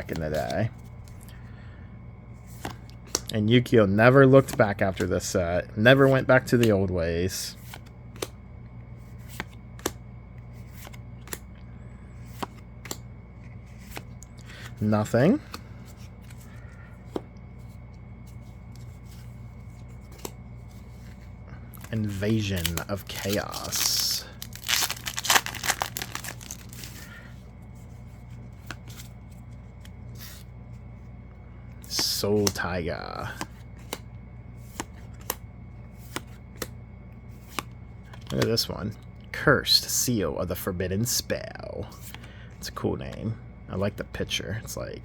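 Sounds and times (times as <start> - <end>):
cards rustling: 0.0 - 1.5, 2.4 - 31.1, 31.7 - 38.8
steady low hum: 0.0 - 45.0.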